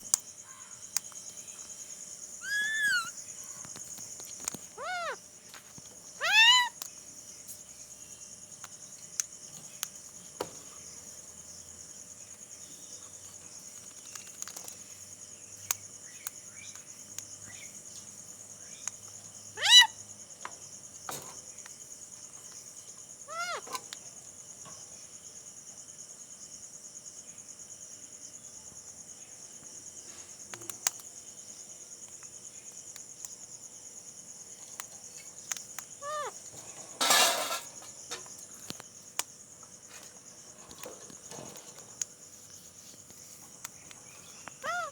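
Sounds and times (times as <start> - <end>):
crickets chirring: 0.0 - 44.9
parakeet mimicking cat meow: 2.4 - 3.2, 4.8 - 5.2, 6.2 - 6.8, 19.6 - 20.0, 23.3 - 23.8, 36.0 - 36.4, 44.6 - 44.9.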